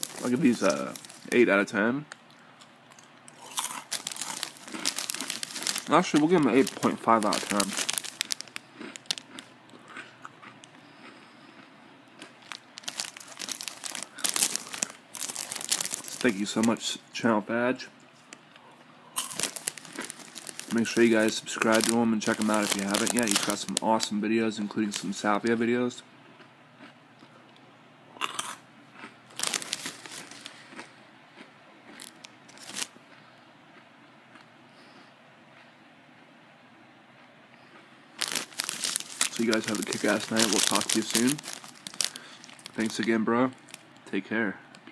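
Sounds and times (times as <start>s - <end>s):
snack packet crinkling: 0.0s - 11.2s, 12.1s - 16.9s, 19.2s - 24.1s, 24.7s - 25.5s, 28.3s - 30.9s, 31.9s - 33.0s, 38.2s - 44.1s.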